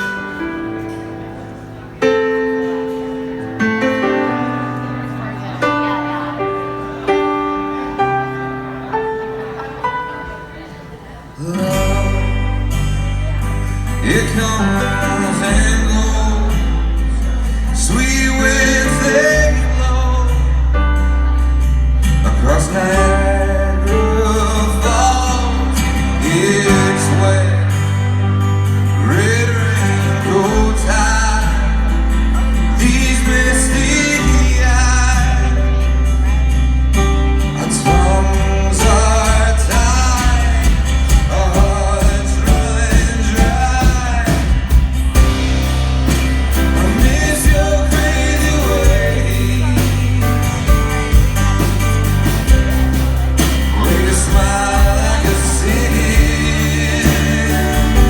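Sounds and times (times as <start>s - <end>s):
guitar: 0.0s - 58.0s
person singing: 11.4s - 20.7s, 22.1s - 36.5s, 37.4s - 58.0s
long held bass notes: 11.6s - 58.0s.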